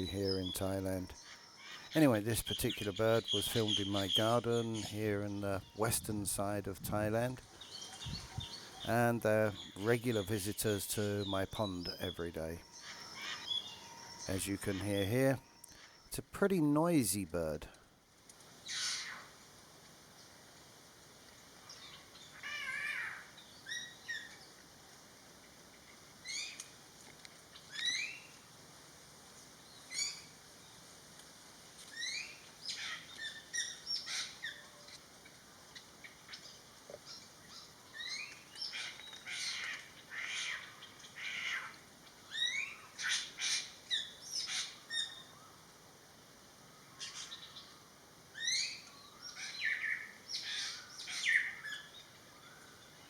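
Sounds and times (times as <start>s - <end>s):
bird calling with rising whistles: 11.3s - 16.0s.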